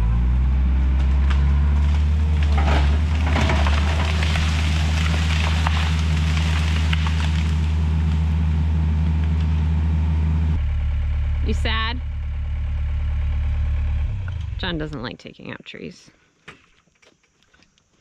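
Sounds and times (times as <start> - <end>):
diesel engine running under load: 0.0 - 15.2
tree cracking and crashing: 0.9 - 9.6
branches snapping and crackling: 1.0 - 8.5.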